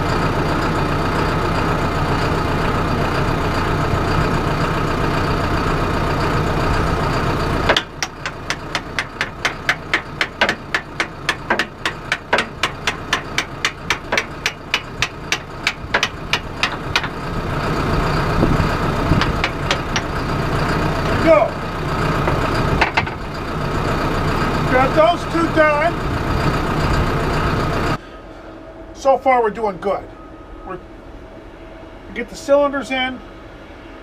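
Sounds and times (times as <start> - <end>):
tractor engine idling: 0.0 - 29.5
sharp metallic clicks: 7.7 - 17.2, 19.2 - 20.1.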